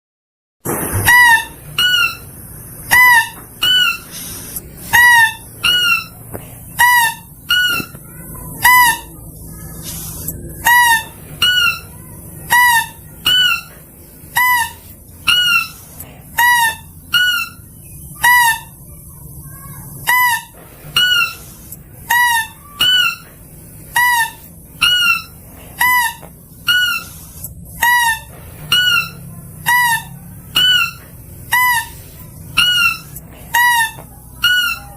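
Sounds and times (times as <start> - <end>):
mouse-deer calling: 2.9 - 8.0, 20.0 - 23.3, 24.0 - 34.9.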